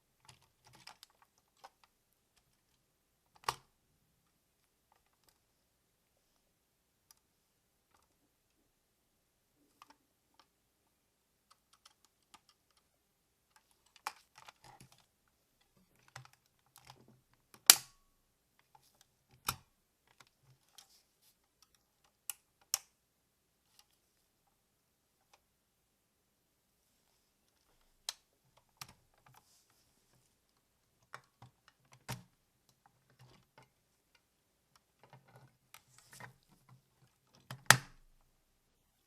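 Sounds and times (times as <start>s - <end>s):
plastic toy parts clicking: 0.2s - 2.6s, 13.5s - 15.0s.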